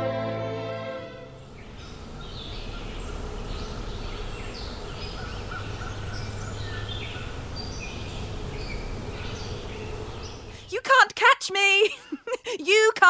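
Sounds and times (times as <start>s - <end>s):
low background rumble: 1.1s - 10.8s
songbirds chirping: 1.2s - 11.7s.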